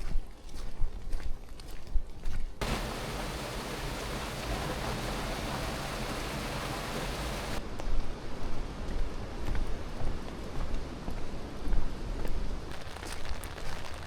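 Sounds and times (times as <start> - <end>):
falling water rushing: 2.6 - 7.6.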